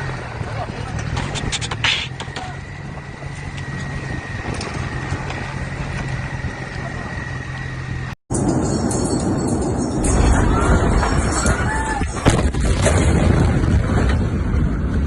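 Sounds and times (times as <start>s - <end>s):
low motor hum: 0.0s - 9.4s.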